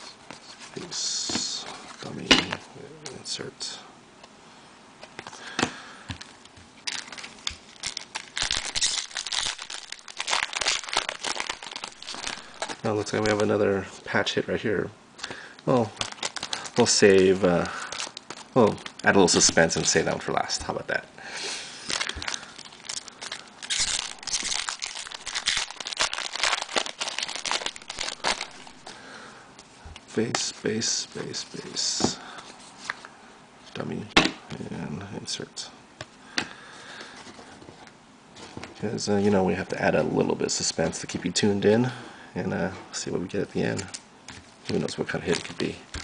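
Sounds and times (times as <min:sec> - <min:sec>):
wrapper crinkling and tearing: 0:06.8 - 0:13.5, 0:15.6 - 0:20.2, 0:21.8 - 0:29.0, 0:44.6 - 0:46.0.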